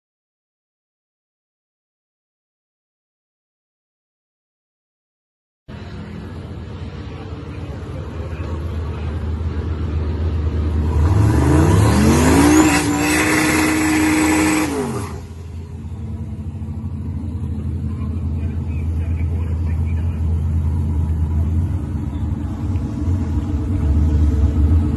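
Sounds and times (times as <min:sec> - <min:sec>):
car engine revving: 0:05.7 - 0:24.9
high turbo whistle: 0:12.2 - 0:15.6.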